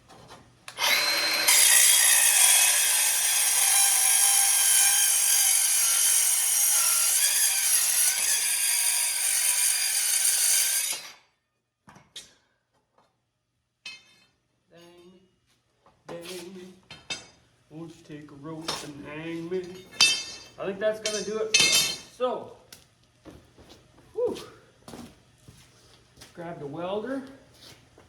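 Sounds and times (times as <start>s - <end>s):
power saw cutting metal: 0.7s - 11.2s.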